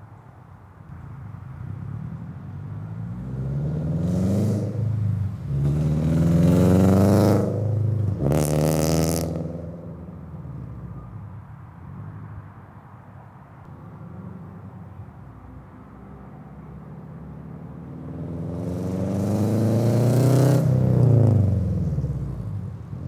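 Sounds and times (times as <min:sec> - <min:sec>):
car accelerating past: 0:02.0 - 0:11.0, 0:16.8 - 0:23.0.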